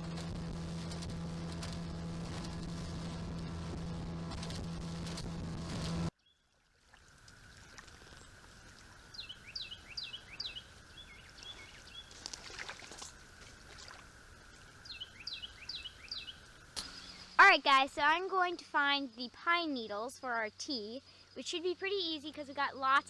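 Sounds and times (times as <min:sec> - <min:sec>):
faint steady high hum: 0:00.0 - 0:06.1, 0:07.0 - 0:23.0
motor humming: 0:00.0 - 0:06.1
bird chirping: 0:09.0 - 0:12.3, 0:14.8 - 0:17.4.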